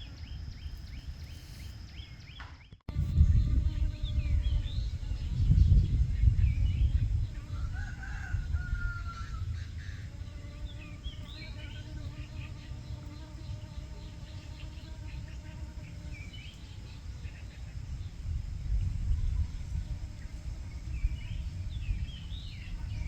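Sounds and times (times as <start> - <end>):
small birds chirping: 0.0 - 23.0
wind rumble on microphone: 0.0 - 23.0
rooster crowing: 7.4 - 9.8.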